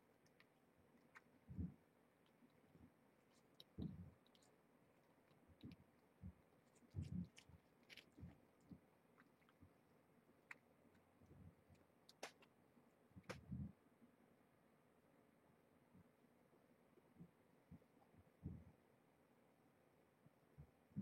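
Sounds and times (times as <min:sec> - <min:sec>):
cat chewing food: 0:00.0 - 0:12.6.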